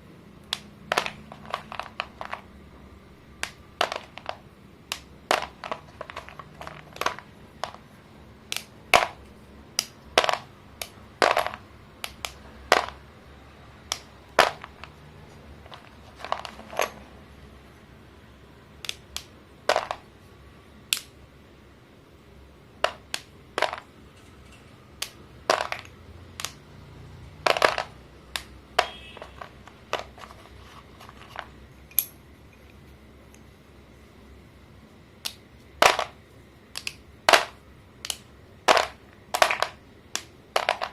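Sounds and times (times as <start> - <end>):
chalk sticks snapping: 3.4 - 7.8, 8.5 - 13.0, 13.8 - 15.0, 18.8 - 19.3, 20.9 - 21.2, 25.0 - 26.6, 27.5 - 32.1, 35.2 - 36.1, 36.7 - 40.9.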